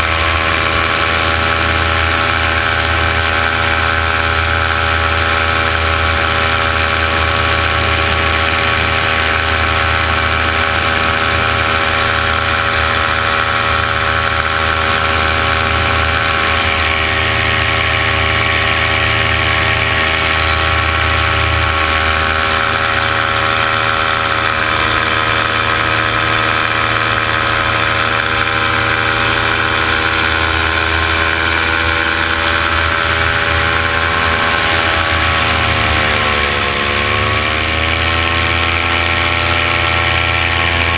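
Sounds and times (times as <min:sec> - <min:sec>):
drone propellers humming: 0:00.0 - 0:40.9.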